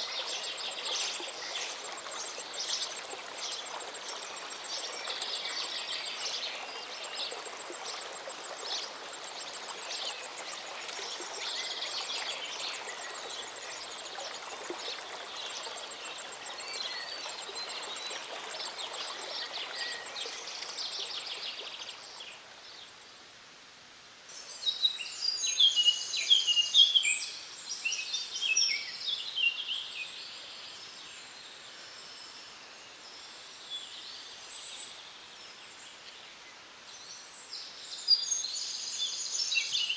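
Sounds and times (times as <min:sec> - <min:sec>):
mountain stream running: 0:00.0 - 0:23.0.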